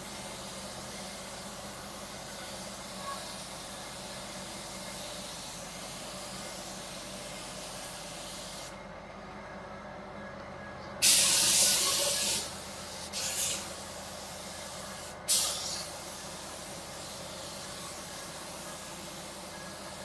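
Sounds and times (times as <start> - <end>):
paint spray gun hissing: 4.5 - 8.7, 11.0 - 20.0.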